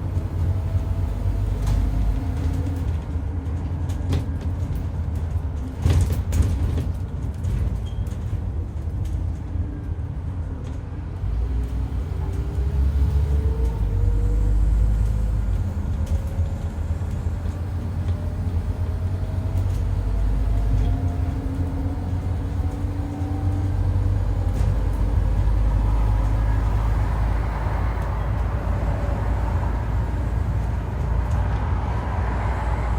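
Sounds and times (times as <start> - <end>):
bus diesel engine rumble: 0.0 - 32.9.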